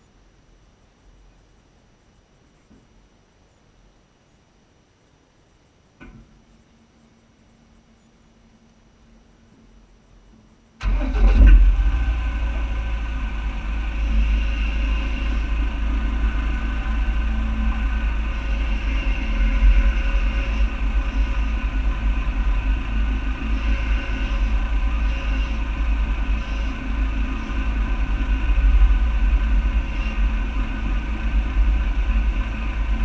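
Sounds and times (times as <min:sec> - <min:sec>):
vehicle engine rumbling: 0:09.1 - 0:33.0.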